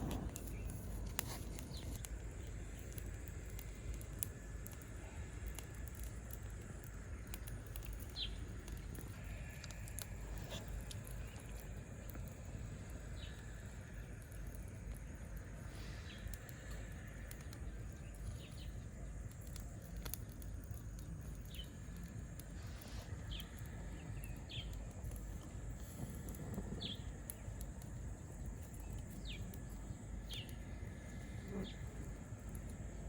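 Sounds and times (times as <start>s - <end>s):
low rumble: 0.0s - 2.4s.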